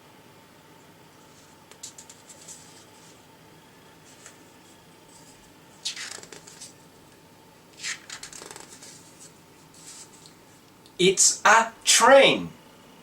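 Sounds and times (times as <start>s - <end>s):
faint steady hum: 0.0s - 13.0s
paper rustling: 1.2s - 3.2s, 4.0s - 6.8s, 7.8s - 10.3s.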